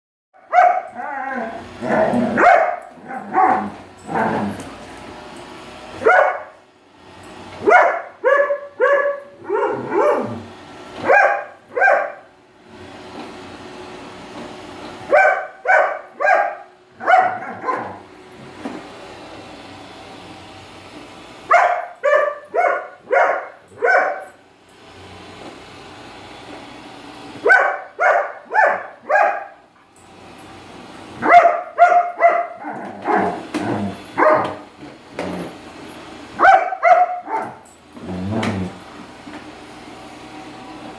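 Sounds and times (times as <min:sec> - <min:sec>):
dog barking: 0:00.4 - 0:01.0, 0:02.2 - 0:03.8, 0:06.0 - 0:06.6, 0:07.6 - 0:10.4, 0:11.0 - 0:12.3, 0:15.1 - 0:18.0, 0:21.5 - 0:24.4, 0:27.4 - 0:29.6, 0:31.2 - 0:34.6, 0:36.4 - 0:37.6
robotic vacuum whirring: 0:00.9 - 0:06.1, 0:30.0 - 0:40.9.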